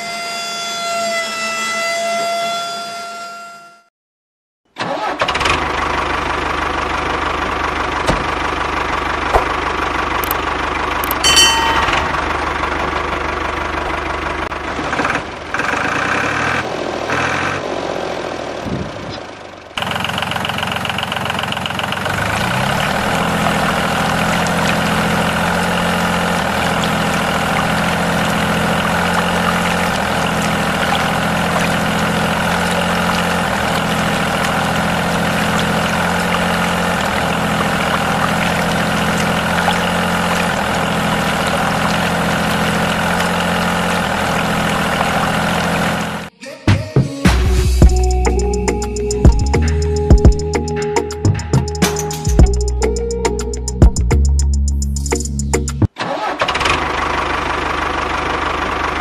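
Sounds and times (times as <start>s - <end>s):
mini tractor engine running: 4.8s - 16.6s, 19.4s - 46.3s, 56.0s - 59.0s.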